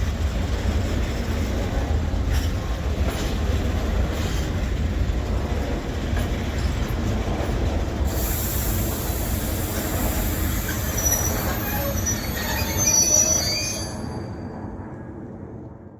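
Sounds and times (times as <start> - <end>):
train wheels rumbling on rails: 0.0 - 15.9
high-pitched wheel squeal: 8.8 - 14.5.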